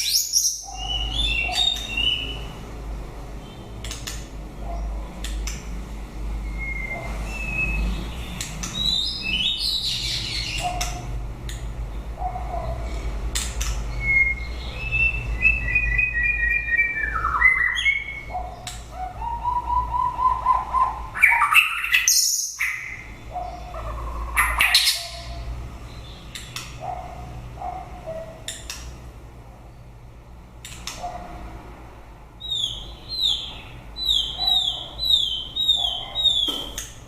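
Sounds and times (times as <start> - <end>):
bird singing whistled notes: 0.0 - 2.4, 6.4 - 8.0, 13.9 - 18.3, 19.2 - 23.0.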